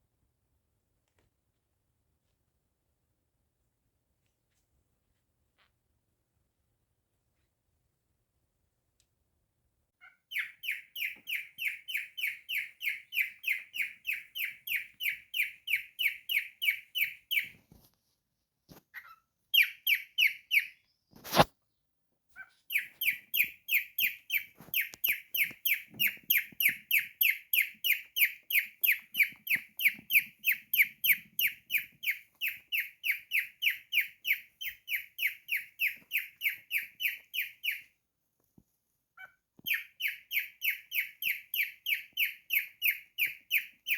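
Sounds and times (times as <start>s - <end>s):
cockatiel chirping: 10.0s - 17.6s, 18.9s - 21.5s, 22.4s - 37.9s, 39.2s - 43.9s.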